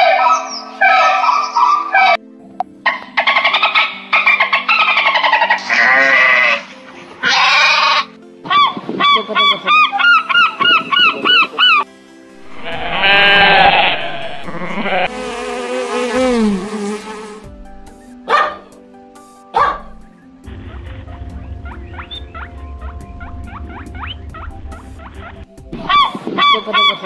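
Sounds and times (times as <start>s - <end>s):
light background music: 0.0s - 27.0s
gull calls: 7.2s - 11.9s, 21.6s - 27.0s
honeybees buzzing: 11.1s - 18.2s.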